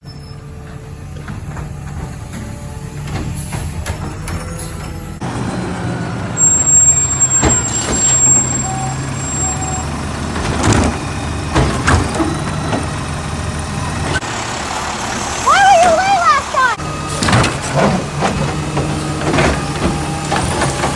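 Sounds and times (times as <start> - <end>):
garbage truck engine running: 0.0 - 20.9
garbage cans banging on truck: 6.7 - 14.3, 15.5 - 20.9.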